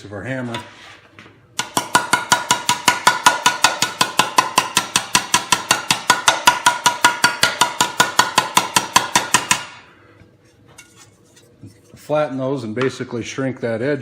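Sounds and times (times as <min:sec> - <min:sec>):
hammer on sheet metal: 0:01.6 - 0:09.9.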